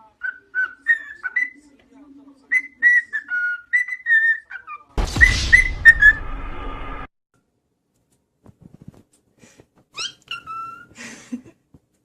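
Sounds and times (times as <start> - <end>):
parrot whistling a tune: 0.2 - 1.6, 2.5 - 4.6
loud rushing noise: 5.0 - 7.1.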